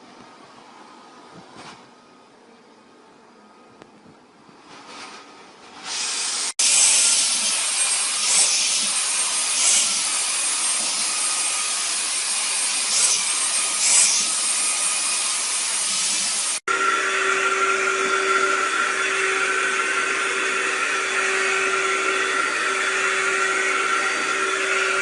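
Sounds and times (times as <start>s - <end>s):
vacuum cleaner running: 5.8s - 25.0s.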